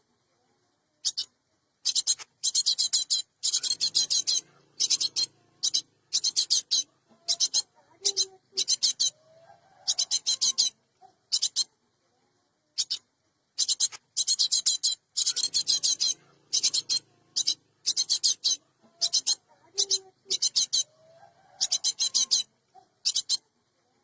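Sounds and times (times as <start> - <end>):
bird rasping chattering calls: 1.0 - 9.2, 9.8 - 11.7, 13.6 - 23.5.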